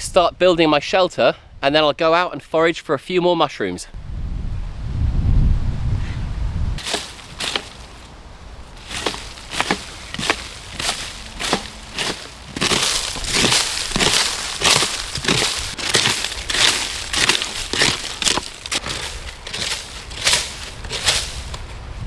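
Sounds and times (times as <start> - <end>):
dry sticks crunching and snapping: 6.8 - 22.0.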